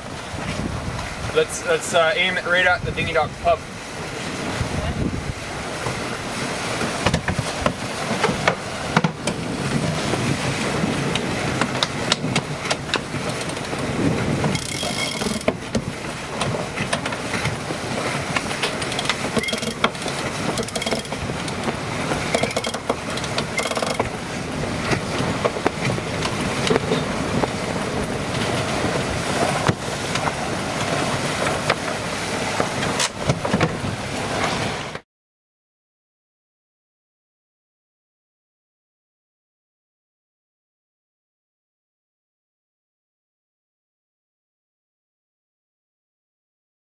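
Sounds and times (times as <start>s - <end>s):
wind buffeting microphone: 0.0s - 34.9s
water rushing along hull: 0.0s - 35.0s.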